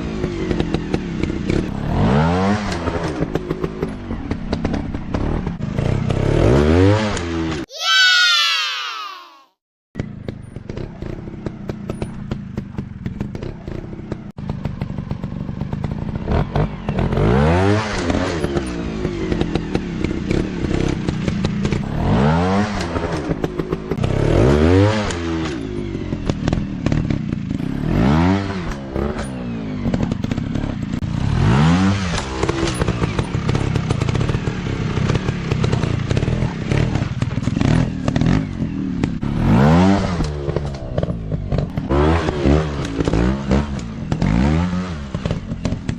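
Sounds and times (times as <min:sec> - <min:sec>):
dirt bike engine revving: 0:12.3 - 0:45.9.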